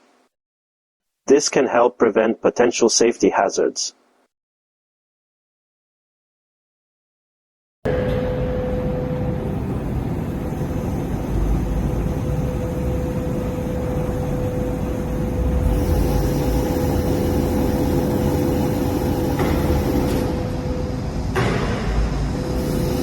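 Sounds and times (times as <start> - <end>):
forklift whine: 7.9 - 23.0.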